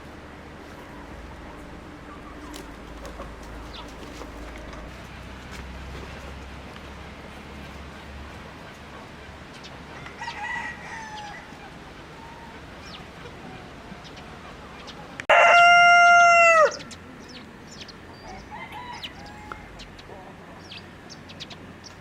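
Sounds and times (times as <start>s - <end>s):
rooster crowing: 9.9s - 12.6s, 15.3s - 16.9s, 18.1s - 19.8s.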